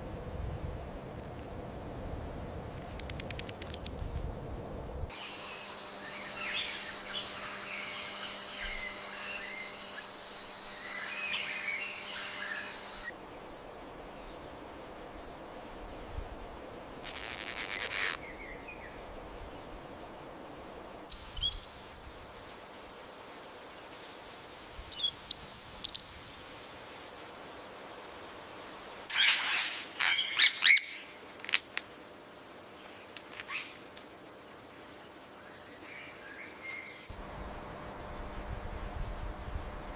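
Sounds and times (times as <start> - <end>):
steady background hiss: 0.0 - 39.9
high insect drone: 5.1 - 13.2
birds chirping and calling: 6.1 - 9.8, 10.8 - 13.1.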